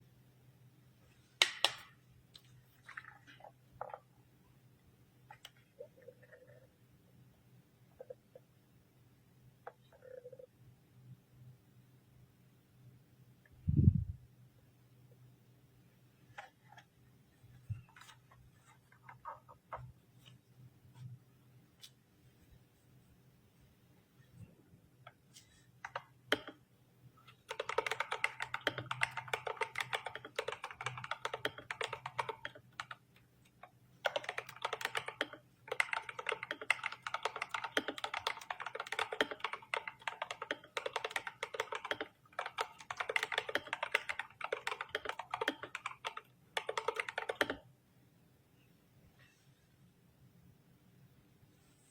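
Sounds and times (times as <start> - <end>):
mechanical keyboard typing: 25.8 - 26.6, 27.4 - 47.7.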